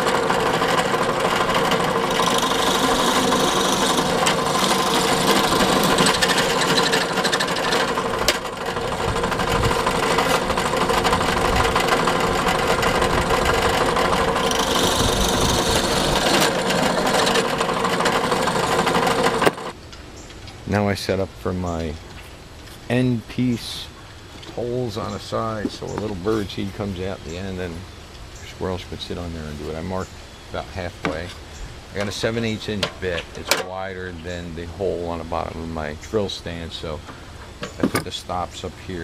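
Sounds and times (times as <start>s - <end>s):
drill bit cutting into wood: 0.0s - 19.7s
drill press motor hum: 0.0s - 19.8s.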